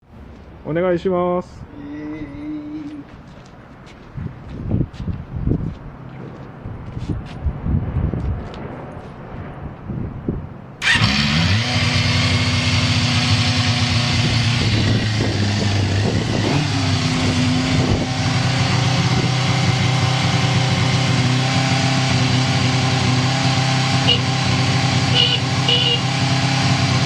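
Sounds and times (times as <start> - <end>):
engine starting on electric starter: 10.8 - 12.2.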